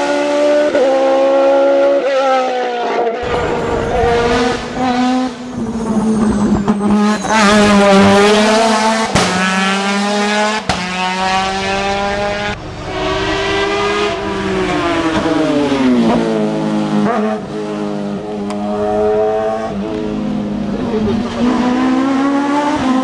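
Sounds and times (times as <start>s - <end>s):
racing car engine at high revs: 0.0s - 23.0s.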